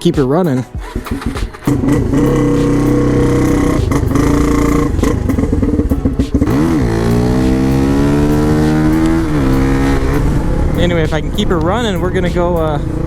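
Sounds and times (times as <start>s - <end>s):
dirt bike engine idling: 0.8s - 7.4s.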